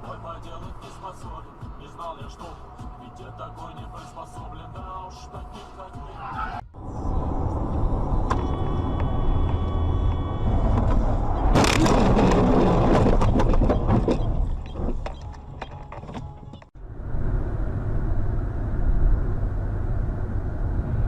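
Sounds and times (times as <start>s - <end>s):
vehicle engine and road rumble: 0.0s - 21.0s
car collision crash: 10.6s - 14.2s
debris clattering: 10.6s - 16.6s.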